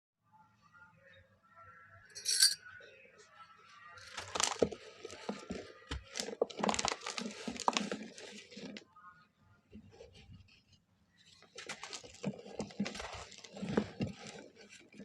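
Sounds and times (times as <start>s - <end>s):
sharp clink: 2.2s - 2.6s
crisp crackles: 4.0s - 8.8s, 11.4s - 15.0s
dry mud crumbling and crunching: 4.0s - 8.8s, 11.5s - 15.0s.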